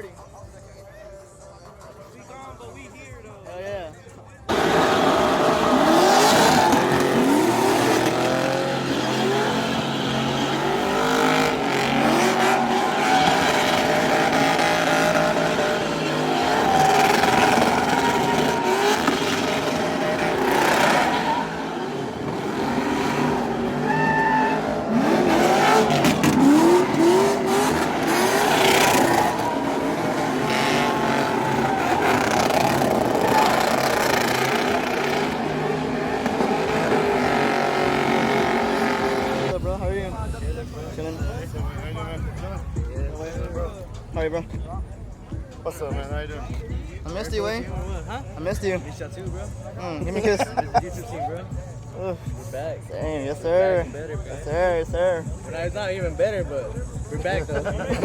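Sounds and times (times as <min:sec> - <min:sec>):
tyre squeal: 0:04.5 - 0:35.3
engines revving: 0:04.5 - 0:58.0.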